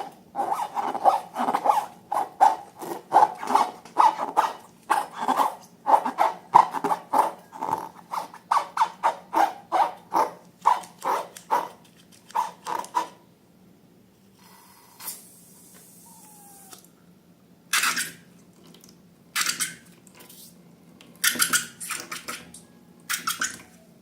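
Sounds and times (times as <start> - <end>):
rubber balloons squeaking: 0.0 - 10.0.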